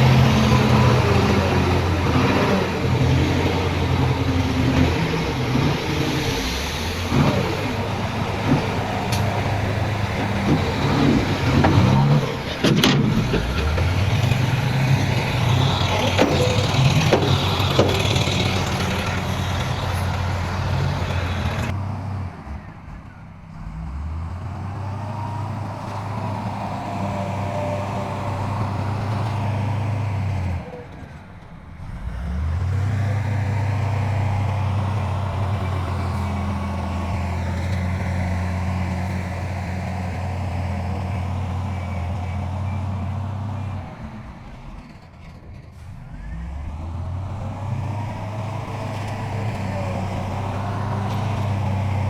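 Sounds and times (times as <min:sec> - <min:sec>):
clanks and knocks: 0:00.0 - 0:21.7
diesel engine running: 0:00.0 - 0:52.0.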